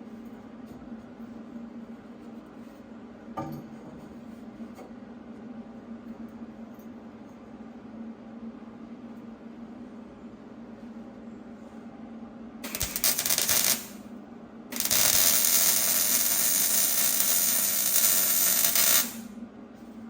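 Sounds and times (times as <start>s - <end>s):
constant low hum: 0.0s - 20.0s
welder arc sizzling: 12.6s - 14.1s, 14.7s - 19.3s.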